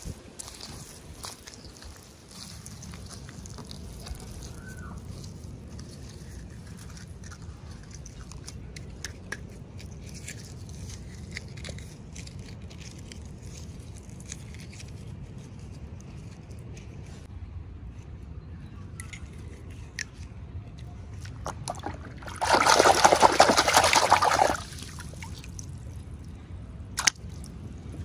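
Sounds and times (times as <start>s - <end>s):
plastic and paper crinkling: 0.0s - 9.0s.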